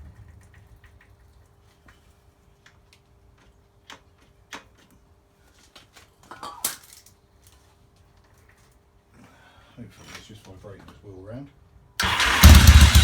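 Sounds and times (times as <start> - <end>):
clatter: 12.0 - 13.0.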